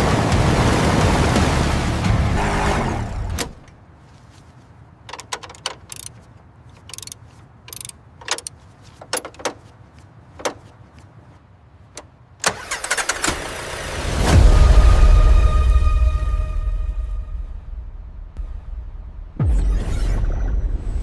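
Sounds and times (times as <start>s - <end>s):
mechanical clicks and clunks: 5.1s - 6.2s, 6.8s - 9.7s, 10.4s - 10.7s.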